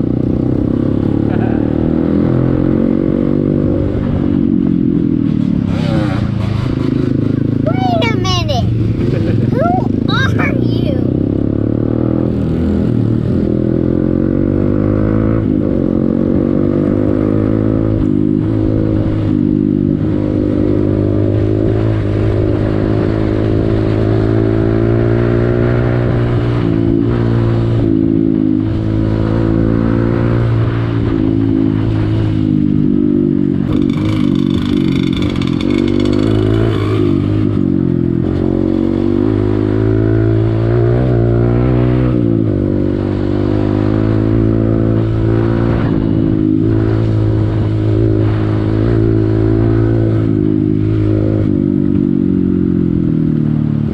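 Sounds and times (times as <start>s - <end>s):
motorcycle engine running: 0.0s - 24.6s, 31.4s - 53.9s.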